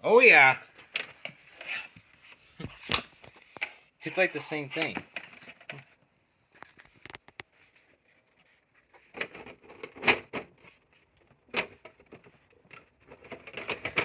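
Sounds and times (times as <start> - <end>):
hard objects clicking and knocking: 11.5 - 14.0.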